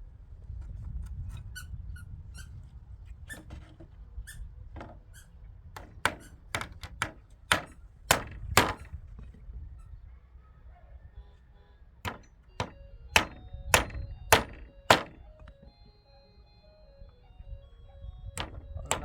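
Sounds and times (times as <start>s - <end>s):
hammer blows: 5.8s - 9.0s, 12.1s - 15.5s, 18.4s - 19.0s.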